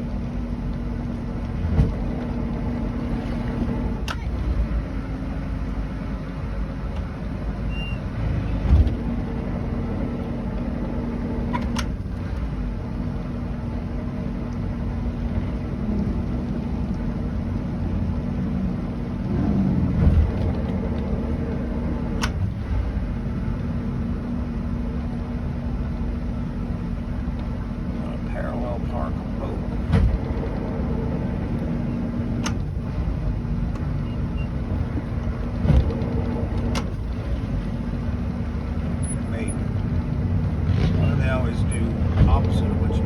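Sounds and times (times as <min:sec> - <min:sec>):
boat engine idling: 0:00.0 - 0:43.0
heavy bumps: 0:26.9 - 0:34.0.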